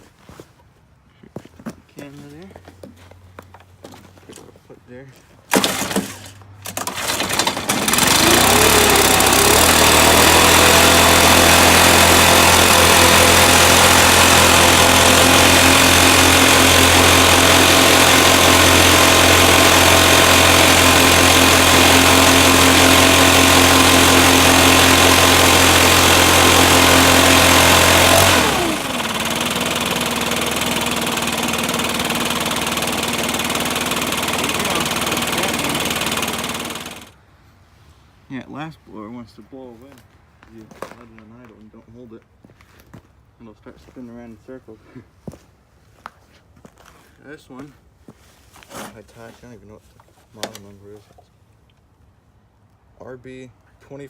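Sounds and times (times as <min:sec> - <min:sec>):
leaf blower running: 0:05.5 - 0:37.2.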